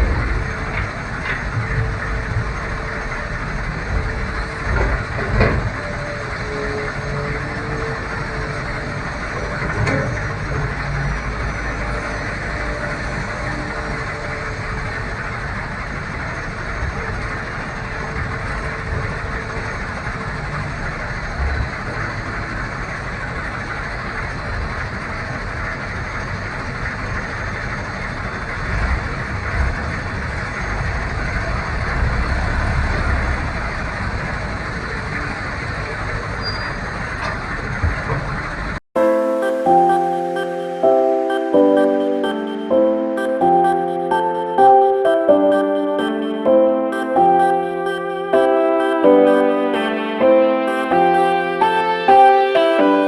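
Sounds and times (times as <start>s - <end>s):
diesel truck engine running: 0.0s - 38.8s.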